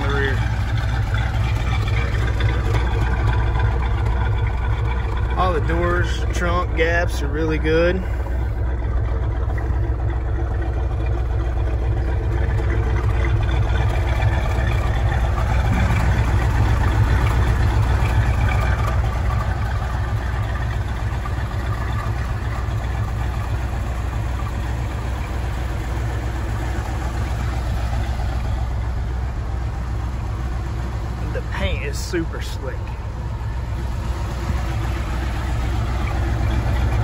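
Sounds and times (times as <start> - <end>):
car engine idling: 0.0 - 37.0.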